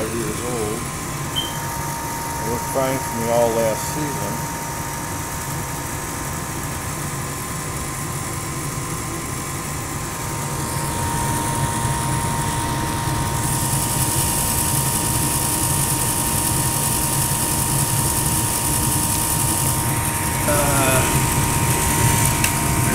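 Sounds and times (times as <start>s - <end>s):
high hiss: 0.0s - 4.4s, 19.1s - 22.9s
furnace motor hum: 0.0s - 22.9s
thin whine: 0.0s - 22.9s.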